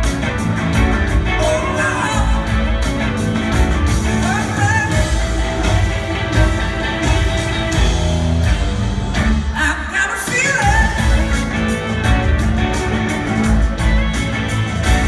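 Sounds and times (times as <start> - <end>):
bass guitar: 0.0 - 15.0
drums steady beat: 0.0 - 15.0
electric guitars: 0.0 - 15.0
person singing: 9.5 - 11.6.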